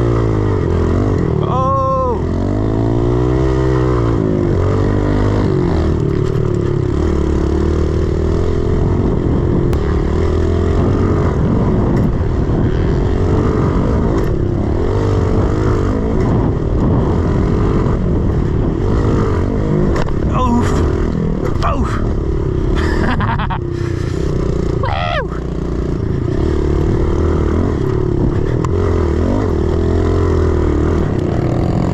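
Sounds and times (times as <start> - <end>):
pit bike engine revving: 0.0 - 31.9.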